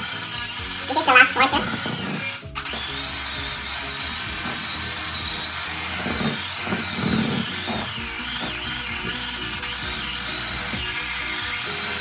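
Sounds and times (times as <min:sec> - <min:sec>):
electric hand mixer whining: 0:00.0 - 0:12.0.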